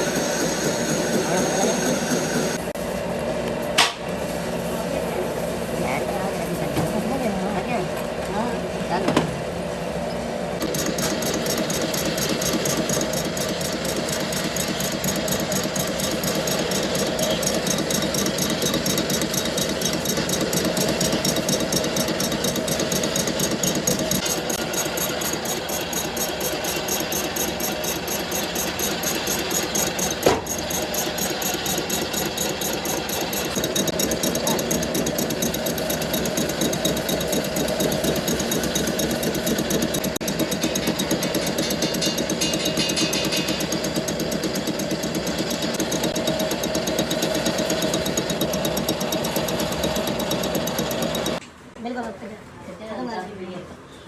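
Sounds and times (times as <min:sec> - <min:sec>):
workshop machinery running: 0:00.0 - 0:52.2.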